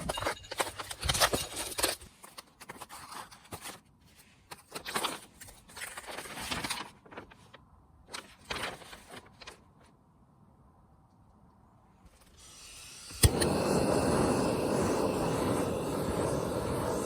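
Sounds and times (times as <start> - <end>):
rustling of objects moved: 0.0 - 10.0.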